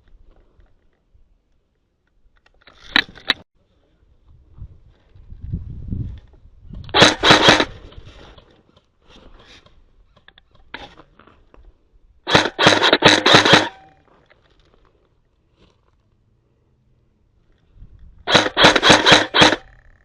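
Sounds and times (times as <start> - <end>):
airsoft rifle firing bursts: 6.9 - 7.7, 12.3 - 13.9, 18.3 - 19.8.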